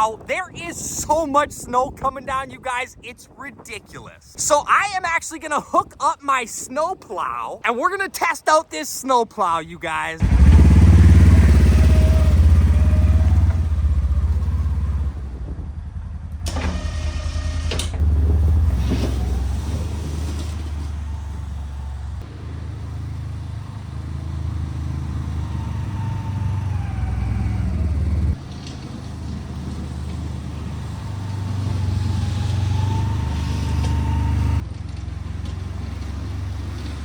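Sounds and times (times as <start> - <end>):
utility vehicle engine running: 10.2 - 37.0.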